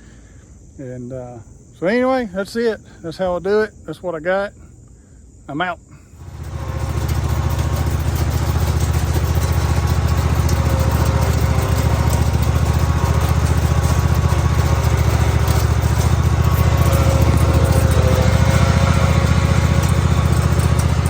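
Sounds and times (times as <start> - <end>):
riding lawn mower engine running: 6.2 - 21.0.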